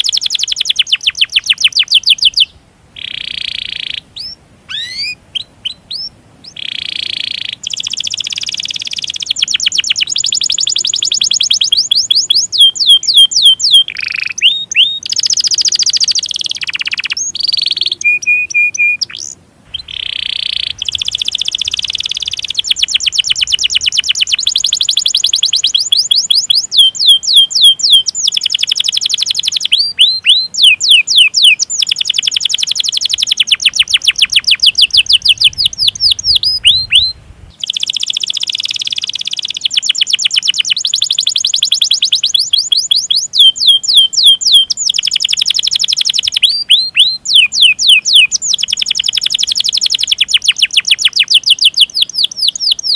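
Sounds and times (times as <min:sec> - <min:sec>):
canary singing trills: 0:00.0 - 0:52.9.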